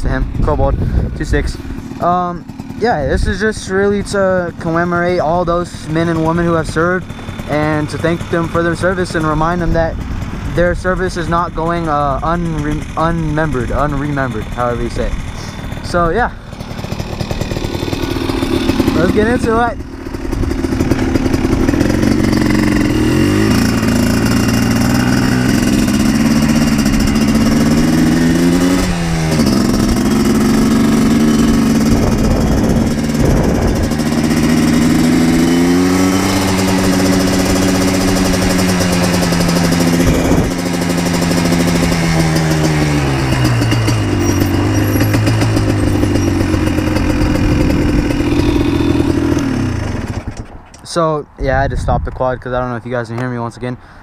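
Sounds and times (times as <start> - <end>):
quad bike engine revving: 0.0 - 51.5.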